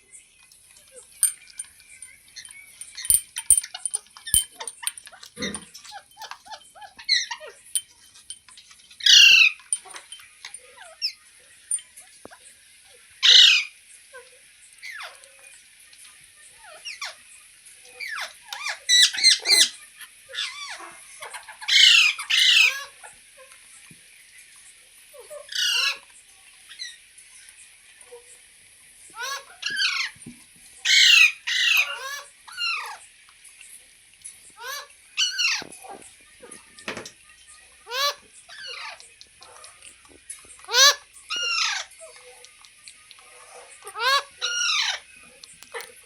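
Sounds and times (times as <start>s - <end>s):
parrot chirps and chatter: 0.0s - 46.0s
parrot screeching: 2.4s - 7.8s, 9.0s - 11.2s, 13.2s - 13.8s, 18.0s - 23.1s, 25.2s - 26.1s, 29.2s - 30.2s, 30.8s - 33.0s, 34.6s - 36.6s, 37.8s - 39.9s, 40.6s - 42.2s, 43.4s - 45.1s.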